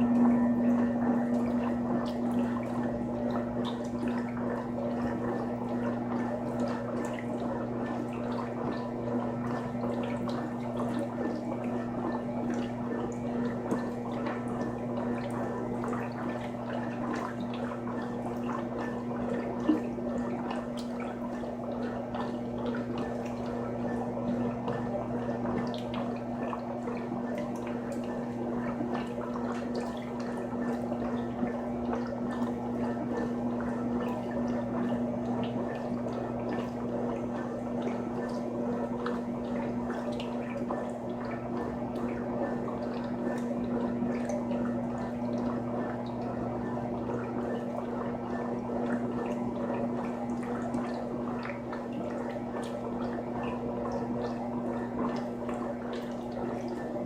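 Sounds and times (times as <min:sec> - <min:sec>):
steady electric hum: 0:00.0 - 0:07.2
water sloshing in washing machine: 0:00.0 - 0:57.0.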